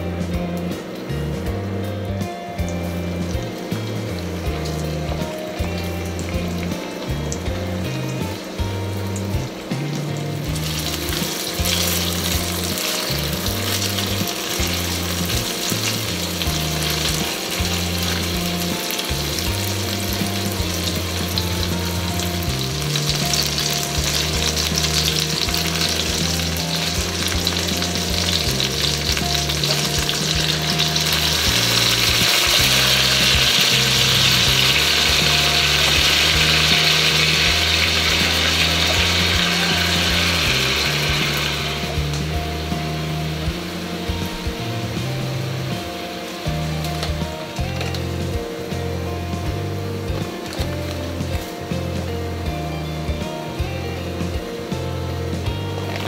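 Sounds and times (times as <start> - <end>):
low background music: 0.0 - 56.0
chicken sizzling in a pan: 2.6 - 56.0.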